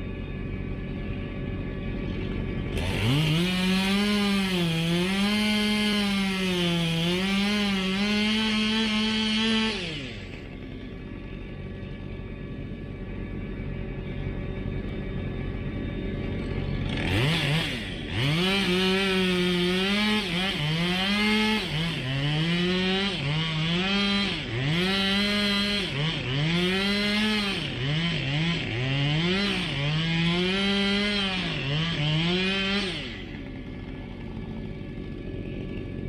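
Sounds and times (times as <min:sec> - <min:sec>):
chainsaw cutting wood: 0:02.5 - 0:11.8, 0:16.6 - 0:36.0.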